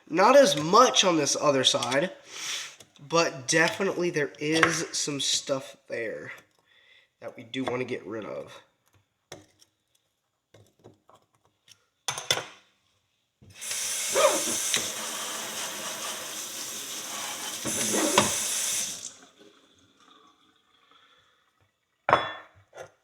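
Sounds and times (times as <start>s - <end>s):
water tap running: 13.5s - 20.9s.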